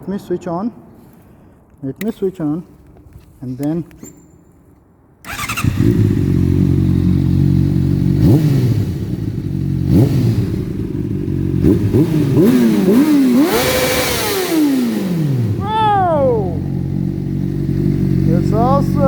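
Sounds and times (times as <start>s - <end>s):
motorcycle engine revving in tunnel: 5.2s - 19.0s.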